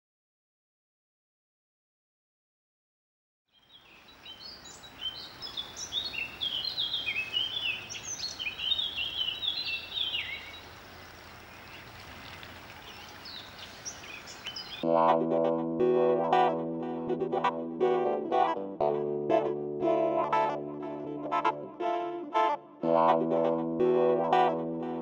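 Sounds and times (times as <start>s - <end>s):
birds chirping and singing: 3.6s - 14.8s
outdoor background hiss: 3.6s - 14.8s.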